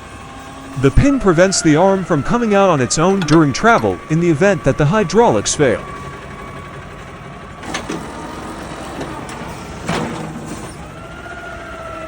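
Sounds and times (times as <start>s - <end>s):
garbage truck engine idling: 0.0s - 12.0s.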